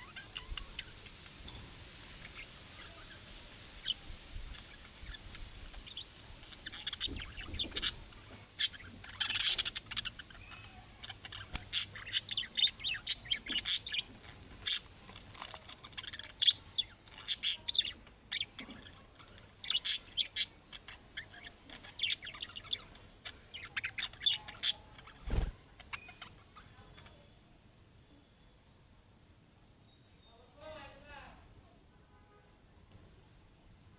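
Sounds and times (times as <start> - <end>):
budgerigars chirping: 0.0 - 1.4, 2.0 - 26.5.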